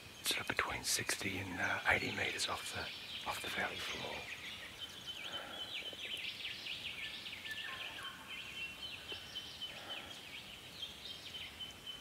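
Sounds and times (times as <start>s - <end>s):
forest birds chirping: 0.0s - 12.0s.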